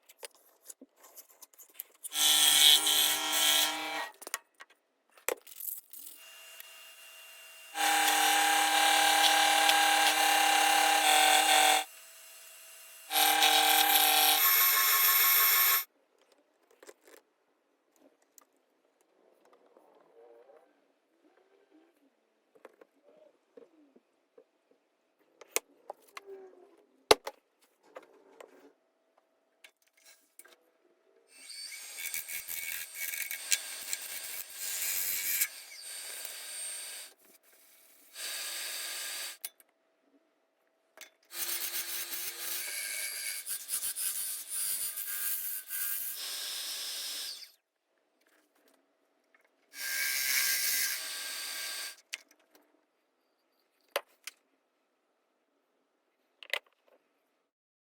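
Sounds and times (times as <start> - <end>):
tool sanding wood: 7.7 - 15.8.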